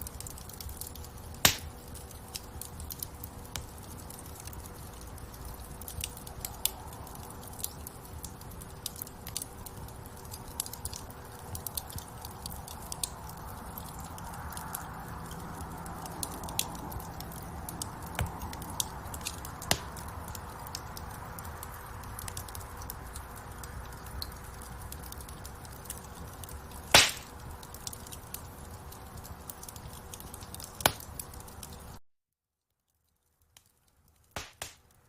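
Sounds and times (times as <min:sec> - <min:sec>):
burning wood crackling: 0:00.0 - 0:32.0, 0:32.9 - 0:35.0
fire rumbling: 0:00.0 - 0:32.0
loud pops from fire: 0:00.2 - 0:04.9, 0:16.2 - 0:22.6, 0:25.1 - 0:31.9, 0:34.2 - 0:35.0.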